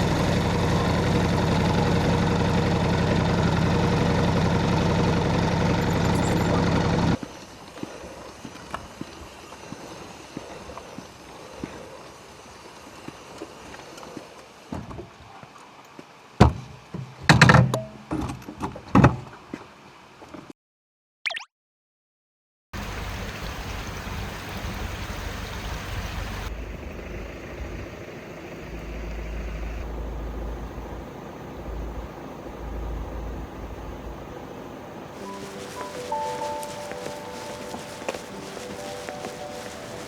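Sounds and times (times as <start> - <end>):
motorcycle engine idling: 0.0 - 7.2.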